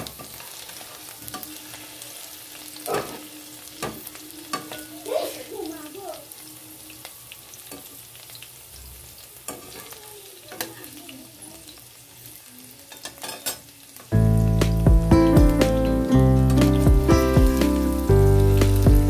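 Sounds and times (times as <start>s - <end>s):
potatoes sizzling in hot oil: 0.0s - 19.0s
loud background music: 14.2s - 19.0s.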